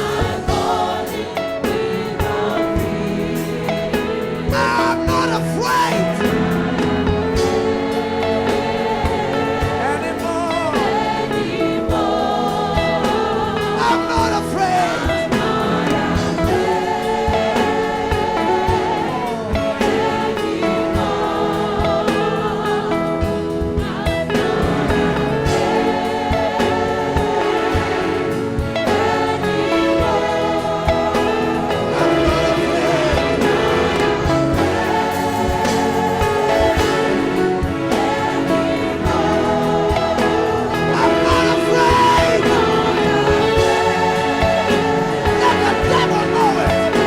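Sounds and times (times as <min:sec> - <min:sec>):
congregation singing gospel song: 0:00.0 - 0:47.0
instrumental backing with beat: 0:00.0 - 0:47.0.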